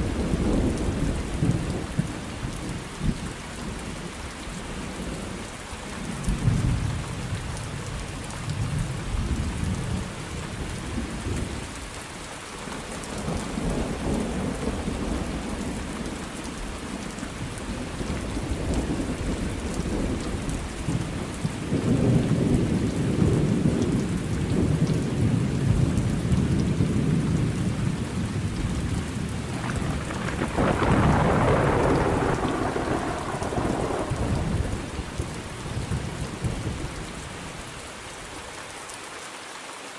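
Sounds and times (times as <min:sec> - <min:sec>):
steady rain falling: 0:00.0 - 0:39.9
rolling thunder rumbling: 0:13.2 - 0:37.6.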